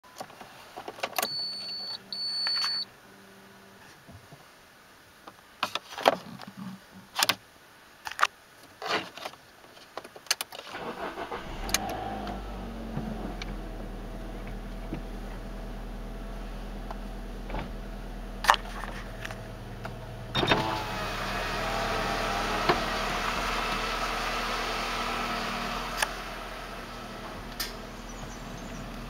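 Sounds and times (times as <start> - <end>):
car engine starting and idling: 10.6 - 29.0
starter motor cranking: 10.7 - 12.6.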